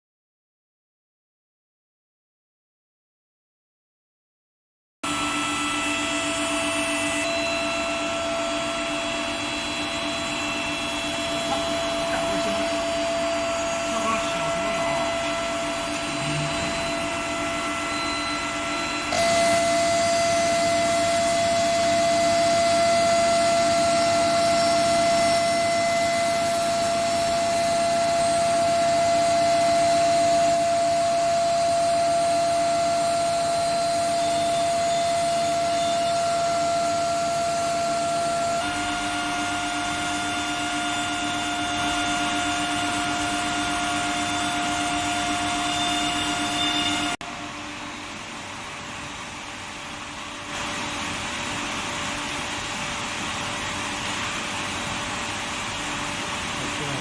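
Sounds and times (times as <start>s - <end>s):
high-pitched furnace whine: 5.0s - 57.0s
noise bed: 7.0s - 31.0s, 37.6s - 57.0s.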